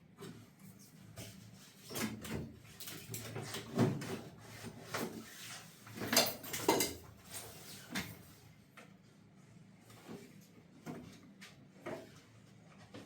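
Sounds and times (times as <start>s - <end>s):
objects knocking and clattering: 6.0s - 7.1s.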